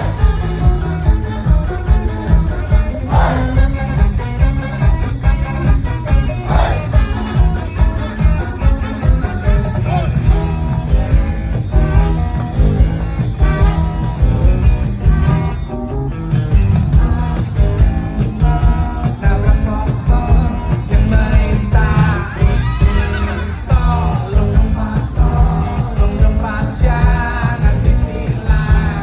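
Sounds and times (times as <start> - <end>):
live rock band playing: 0.0 - 29.0
person singing: 16.9 - 29.0.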